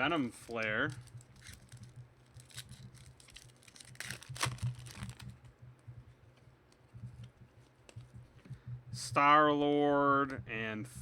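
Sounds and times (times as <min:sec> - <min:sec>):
steady low hum: 0:00.0 - 0:11.0
cards and wrappers rustling: 0:00.2 - 0:05.5.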